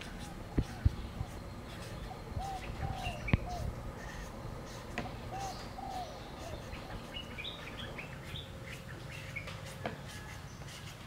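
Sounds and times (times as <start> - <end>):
low steady rumble: 0.0 - 9.8
small birds chirping: 0.0 - 11.0.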